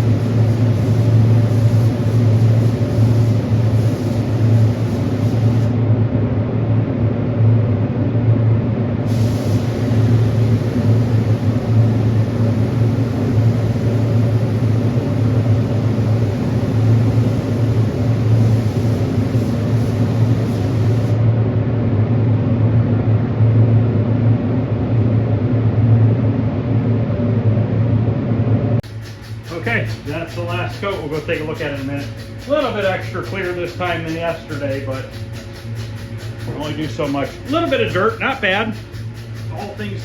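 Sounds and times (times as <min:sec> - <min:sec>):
paint spray gun hissing: 0:00.0 - 0:05.8, 0:09.1 - 0:21.2, 0:28.8 - 0:40.0
low motor hum: 0:09.6 - 0:40.0.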